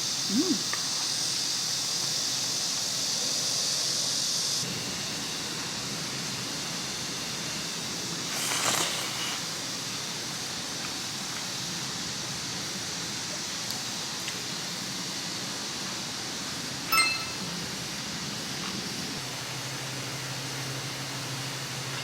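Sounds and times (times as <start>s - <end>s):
high hiss: 0.0s - 12.3s
outdoor background hiss: 0.0s - 22.0s.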